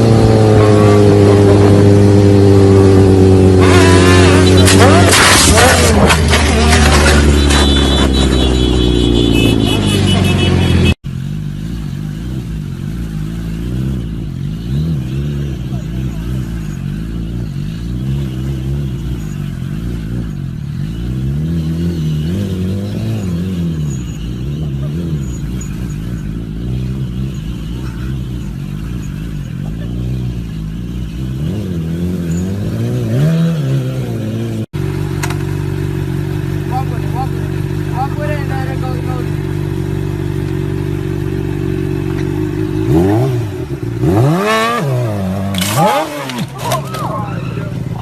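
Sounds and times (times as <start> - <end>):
motorcycle engine: 0.0 - 48.0.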